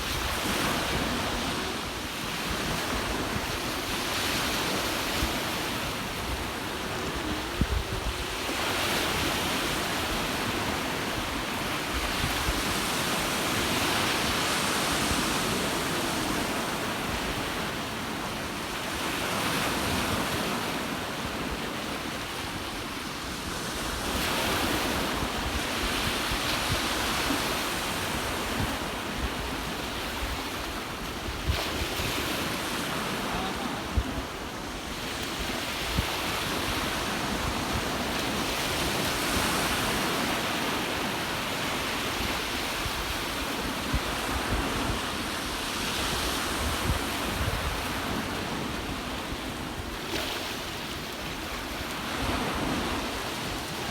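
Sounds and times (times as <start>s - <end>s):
wind buffeting microphone: 0.0s - 17.6s, 42.1s - 49.9s
ocean waves washing ashore: 0.0s - 53.9s.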